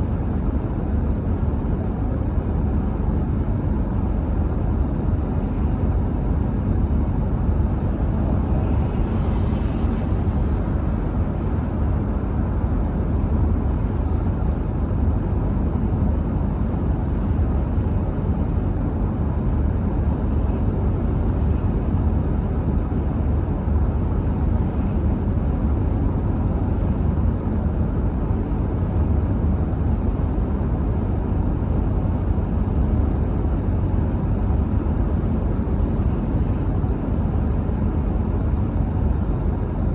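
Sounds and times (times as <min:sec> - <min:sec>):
car driving on road: 0:00.1 - 0:15.6.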